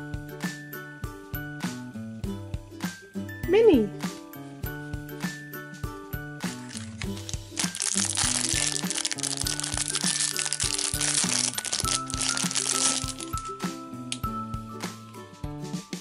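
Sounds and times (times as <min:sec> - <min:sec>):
background music: 0:00.0 - 0:16.0
plastic wrapper crinkling: 0:06.6 - 0:14.2.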